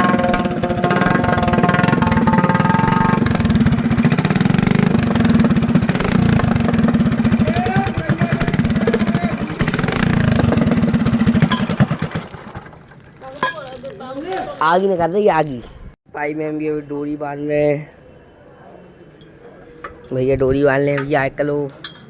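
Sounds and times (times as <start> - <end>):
motorcycle engine puttering: 0.0 - 14.4.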